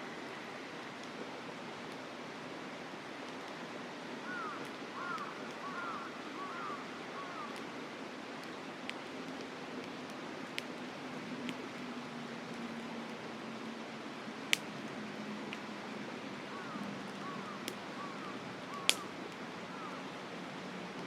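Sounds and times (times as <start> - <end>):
mountain river rushing: 0.0 - 21.0
campfire crackling and popping: 3.2 - 3.7, 4.4 - 5.9, 7.4 - 21.0.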